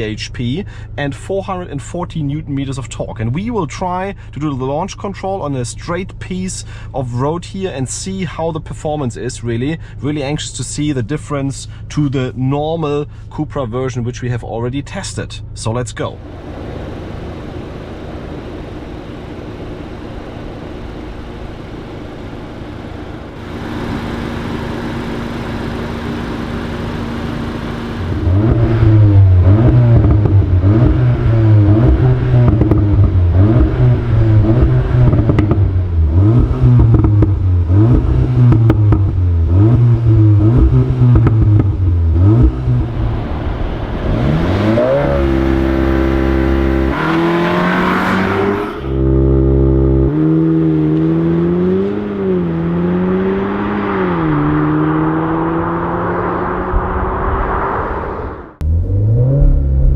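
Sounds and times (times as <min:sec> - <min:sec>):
car engine accelerating: 0:16.2 - 0:59.9.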